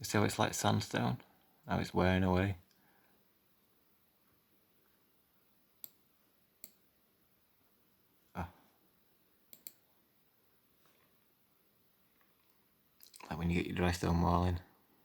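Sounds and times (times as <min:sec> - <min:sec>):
computer mouse clicking: 0:05.8 - 0:06.0, 0:06.6 - 0:06.8, 0:09.5 - 0:09.8.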